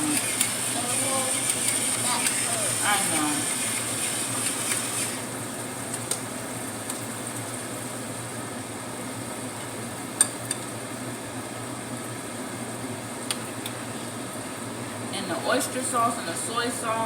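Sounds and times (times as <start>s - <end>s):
vegetables sizzling in a pan: 0.0s - 5.8s.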